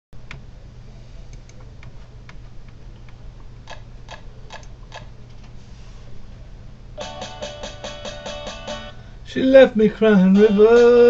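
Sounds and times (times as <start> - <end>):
steady low hum: 0.2 - 11.0
sharp clicks: 3.7 - 5.1.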